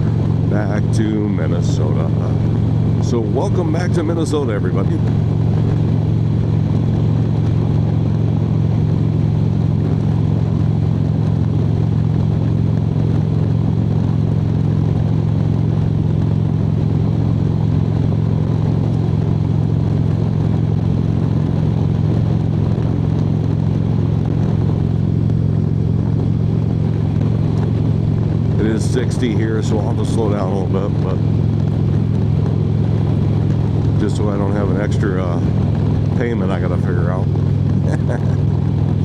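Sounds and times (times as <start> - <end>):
motorcycle engine low rumble: 0.0 - 39.0.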